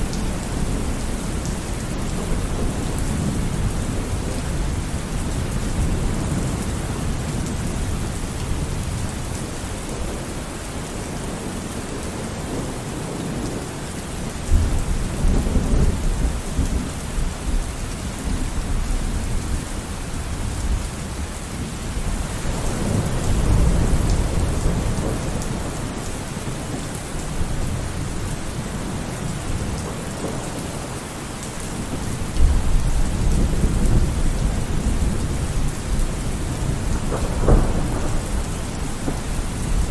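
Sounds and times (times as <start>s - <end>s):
heavy rain falling: 0.0s - 39.9s
low thunder rumbling: 21.6s - 31.0s, 31.7s - 39.9s.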